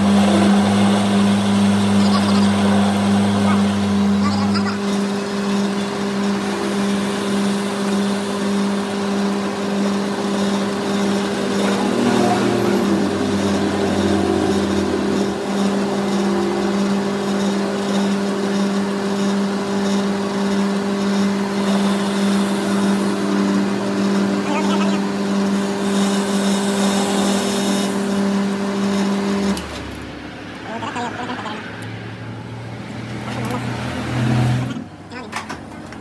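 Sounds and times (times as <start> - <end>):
machine motor humming: 0.0 - 36.0.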